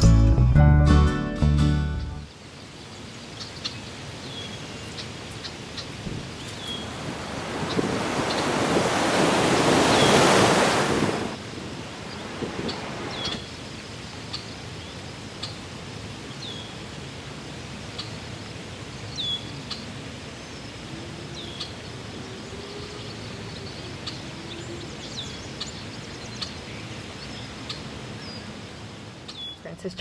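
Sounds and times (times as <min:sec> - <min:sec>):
outdoor background noise: 0:02.2 - 0:30.0
bird chirping: 0:29.3 - 0:29.7.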